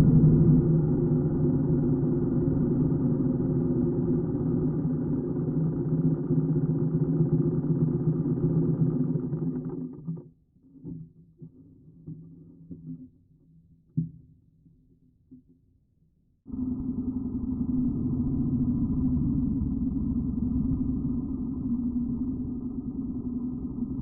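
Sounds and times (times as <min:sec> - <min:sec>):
motorcycle engine running: 0:00.0 - 0:09.9, 0:16.5 - 0:24.0.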